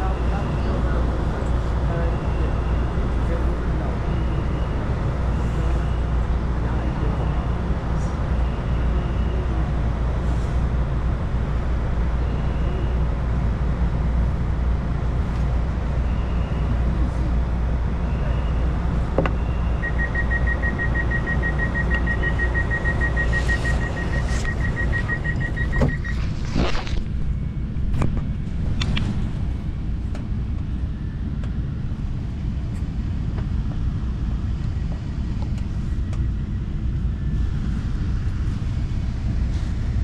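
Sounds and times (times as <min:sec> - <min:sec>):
train carriage rumble: 0:00.0 - 0:40.0
rapid high electronic beeping: 0:19.7 - 0:26.2.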